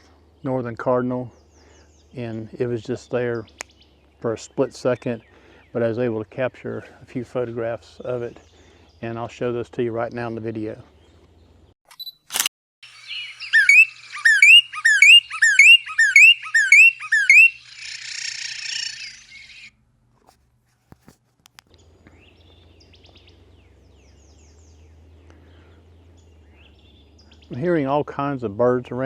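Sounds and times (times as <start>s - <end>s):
distant bird calls: 0.0s - 11.8s, 12.8s - 19.8s, 21.7s - 29.0s
bird whistled song: 12.9s - 19.7s.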